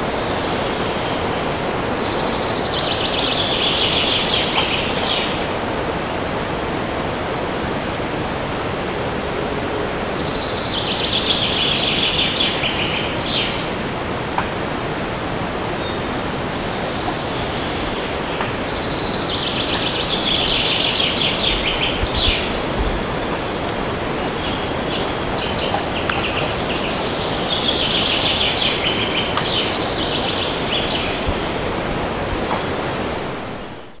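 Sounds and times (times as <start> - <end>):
wind rushing through forest: 0.0 - 34.0
songbird trilling and chirping: 0.3 - 6.1, 15.8 - 23.6, 24.2 - 31.5.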